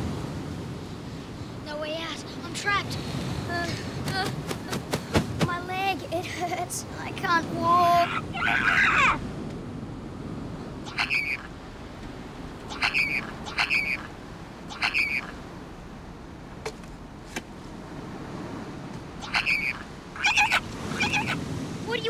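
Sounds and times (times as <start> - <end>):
bird-like crying wails: 8.0 - 9.2, 10.8 - 11.6, 12.6 - 15.4, 19.2 - 21.4.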